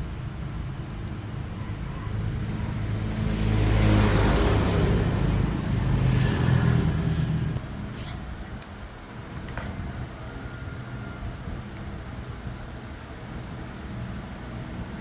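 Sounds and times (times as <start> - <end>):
vehicle engine passing: 2.2 - 7.6.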